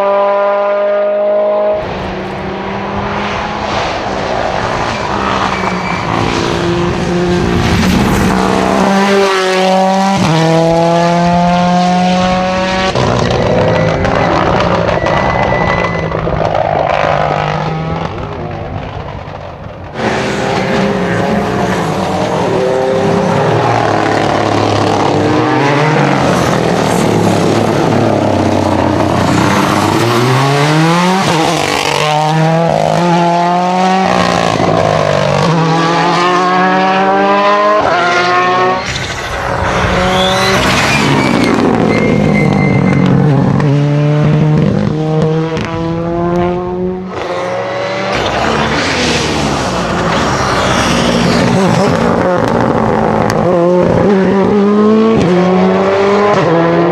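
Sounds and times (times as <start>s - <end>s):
rally car engines revving: 0.0s - 56.9s
tyres squealing: 4.5s - 6.7s, 13.6s - 17.2s, 38.6s - 43.8s.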